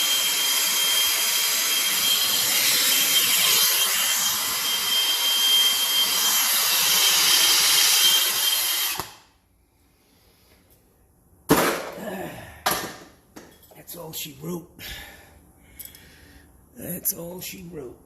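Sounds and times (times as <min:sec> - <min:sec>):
power tool whining: 0:00.0 - 0:09.2.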